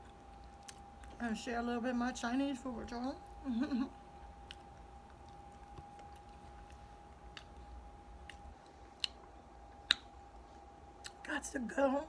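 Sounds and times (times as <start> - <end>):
person chewing food: 0.0 - 1.3, 3.8 - 11.2
faint steady hum: 0.0 - 12.0
wet mouth clicks and smacks: 4.4 - 10.2.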